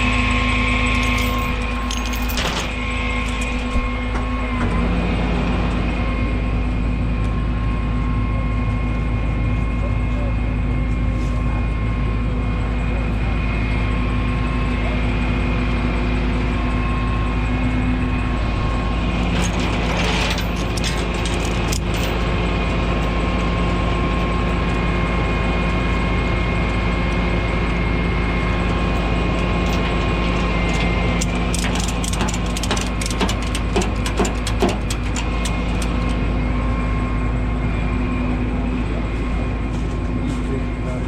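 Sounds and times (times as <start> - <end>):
truck engine running: 0.0 - 41.0
mechanical clicking and rattling: 19.4 - 22.2, 29.4 - 36.2.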